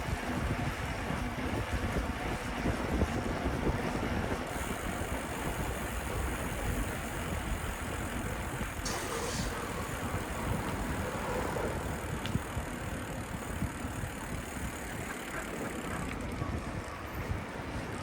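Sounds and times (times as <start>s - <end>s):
car engines running and idling: 0.0s - 18.0s
wind on microphone: 0.0s - 18.0s
short hiss: 8.8s - 9.7s.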